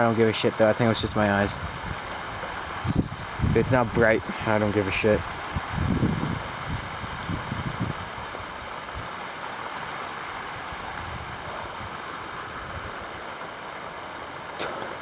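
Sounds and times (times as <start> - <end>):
heavy rain pouring: 0.0 - 15.0
sharp knock: 14.6 - 15.0.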